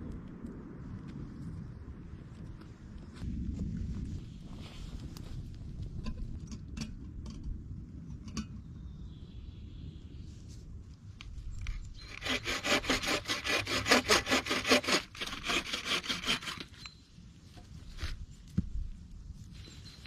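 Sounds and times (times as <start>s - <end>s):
hand saw cutting wood: 12.0s - 16.8s.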